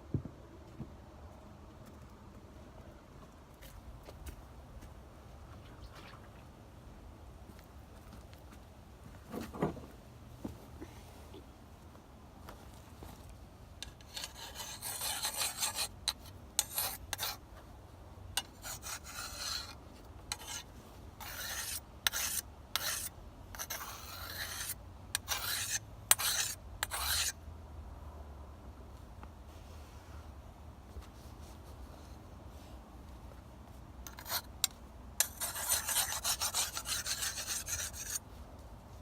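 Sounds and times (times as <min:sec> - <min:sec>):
whetstone sharpening sickle blade: 0:13.8 - 0:17.3, 0:21.2 - 0:27.3, 0:35.2 - 0:38.2.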